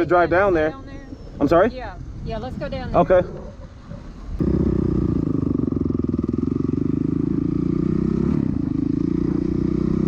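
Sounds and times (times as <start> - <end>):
dirt bike engine running: 3.6 - 10.0.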